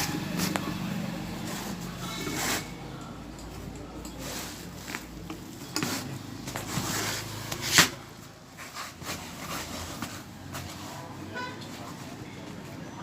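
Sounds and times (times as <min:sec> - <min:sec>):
hand tools knocking and clinking: 0:02.2 - 0:06.7.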